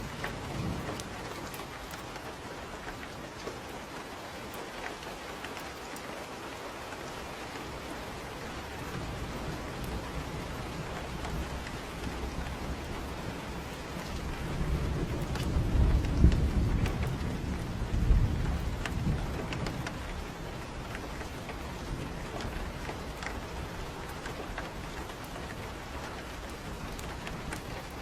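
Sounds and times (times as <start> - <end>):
thunder rumbling: 0.0 - 3.5, 7.7 - 28.0
steady rain falling: 0.0 - 28.0.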